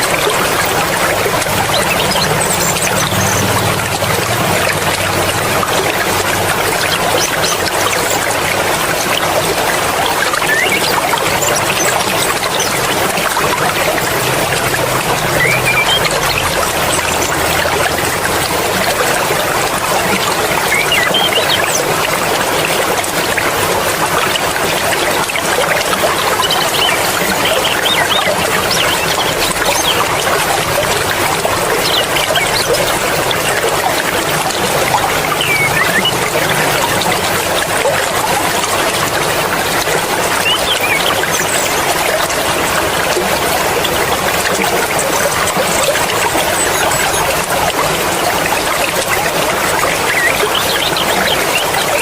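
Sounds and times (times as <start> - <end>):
mountain stream flowing: 0.0 - 52.0.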